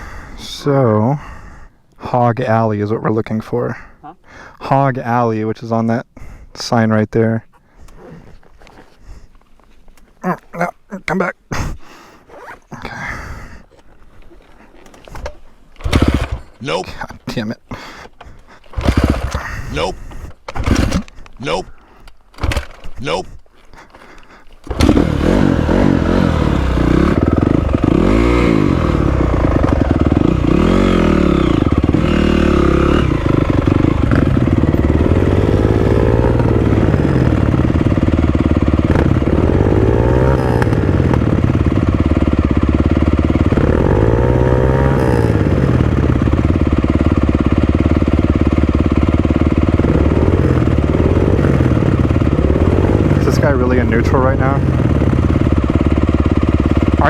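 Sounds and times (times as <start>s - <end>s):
dirt bike engine revving: 15.8s - 17.0s, 18.7s - 20.0s, 20.6s - 21.6s, 24.0s - 57.0s.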